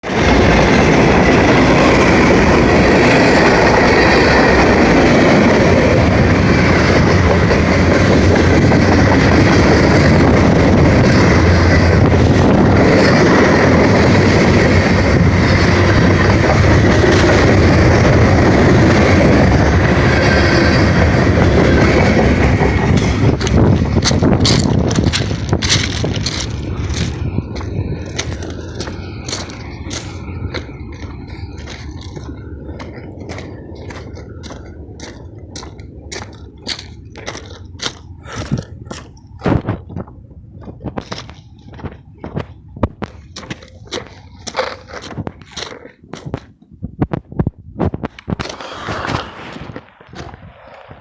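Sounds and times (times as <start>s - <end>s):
train wheels rumbling on rail: 0.0s - 51.0s.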